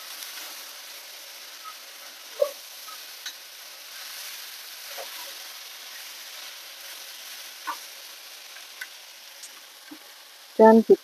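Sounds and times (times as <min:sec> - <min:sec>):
meat sizzling in frying pan: 0:00.0 - 0:11.0.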